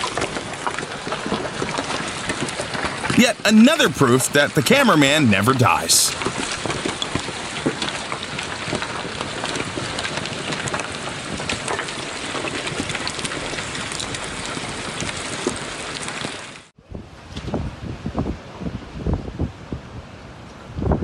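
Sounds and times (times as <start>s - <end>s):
heavy rain on hard surfaces: 0.0s - 3.1s, 6.6s - 16.6s.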